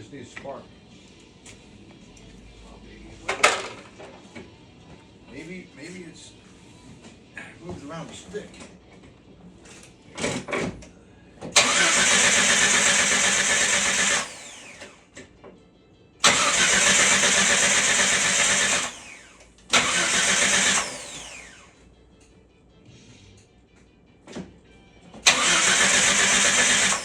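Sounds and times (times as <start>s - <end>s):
starter cranking engine: 11.6s - 15.0s, 16.2s - 21.8s, 25.2s - 27.0s
starter whine spinning down: 11.6s - 15.1s, 16.2s - 21.8s, 25.2s - 27.0s.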